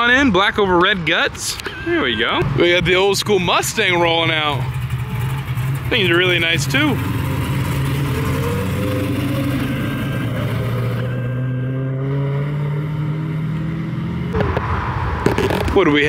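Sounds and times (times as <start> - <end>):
car engine pulling away: 2.4 - 16.0.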